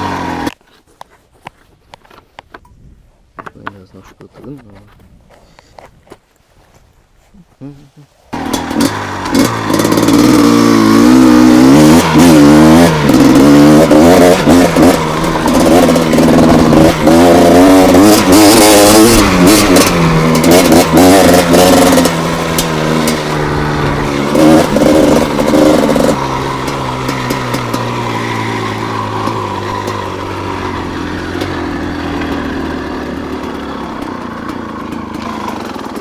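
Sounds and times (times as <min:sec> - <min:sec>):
two-stroke engine revving: 0:00.0 - 0:00.6, 0:08.3 - 0:36.0.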